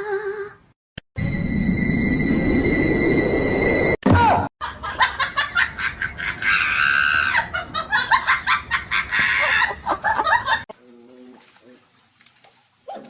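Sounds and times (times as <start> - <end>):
person laughing hard: 4.6 - 10.7.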